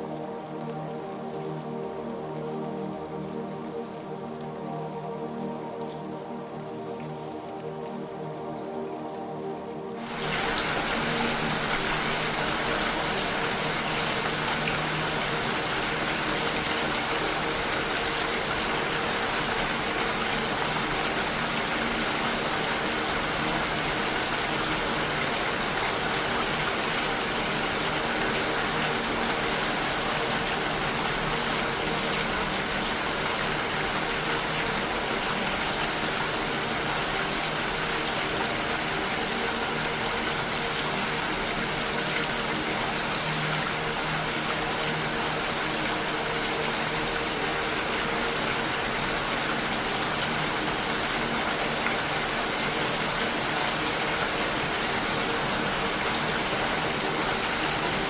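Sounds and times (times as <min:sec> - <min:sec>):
steady dense rain: 0:00.0 - 0:58.0.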